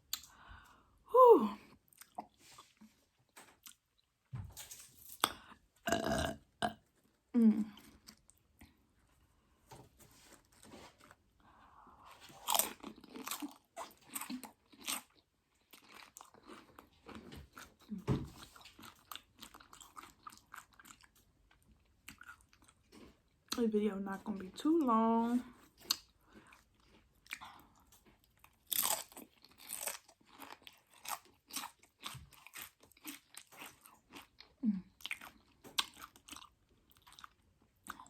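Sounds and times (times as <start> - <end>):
brief vocal sounds: 1.1 - 1.6
chewing and crunching chips: 1.6 - 9.6, 10.2 - 38.0.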